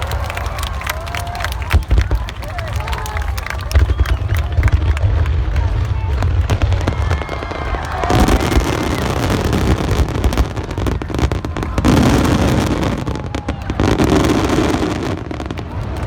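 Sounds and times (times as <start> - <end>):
fireworks crackling: 0.0 - 16.0
fireworks booming: 3.6 - 16.0.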